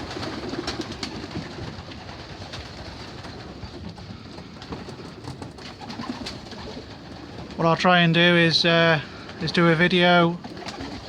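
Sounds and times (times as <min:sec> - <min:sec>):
pigeons cooing: 0:00.0 - 0:07.6, 0:08.8 - 0:11.0
wing flaps: 0:00.0 - 0:07.7, 0:10.4 - 0:11.0.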